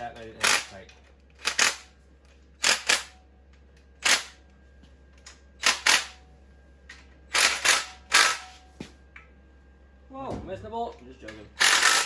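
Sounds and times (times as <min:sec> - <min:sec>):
pneumatic impact wrench bursts: 0:02.6 - 0:03.1, 0:05.6 - 0:06.2, 0:07.3 - 0:08.5, 0:11.6 - 0:12.0.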